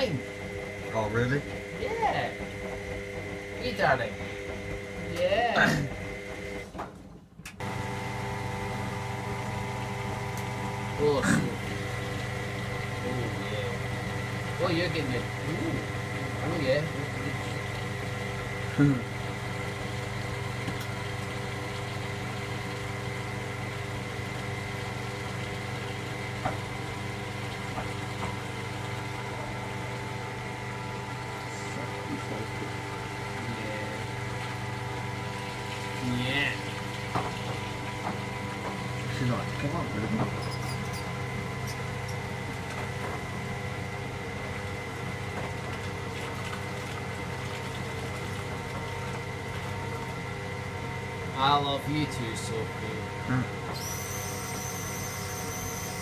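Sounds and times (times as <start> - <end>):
washing machine motor humming: 0.0 - 56.0
thin high whine: 53.7 - 56.0.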